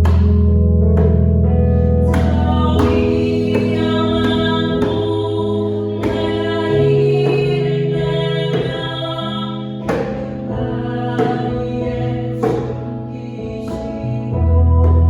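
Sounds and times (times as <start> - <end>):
piano chords: 0.0 - 15.0
djembe strikes: 2.0 - 12.9.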